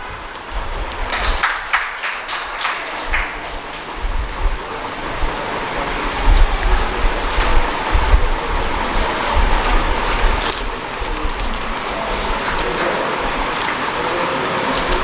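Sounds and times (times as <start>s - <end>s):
audience applause: 0.0s - 15.0s
low thumps: 3.1s - 13.6s.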